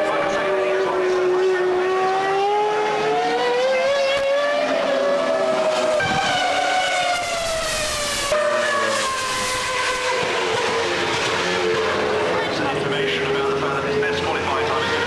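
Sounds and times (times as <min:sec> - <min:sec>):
race car engines at high revs: 0:00.0 - 0:15.0.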